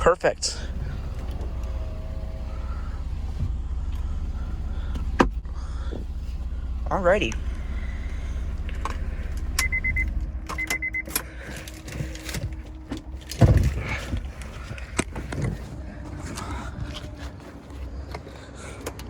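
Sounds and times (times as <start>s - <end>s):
car engine rumble: 0.0s - 19.0s
heavy low thud: 12.4s - 16.8s.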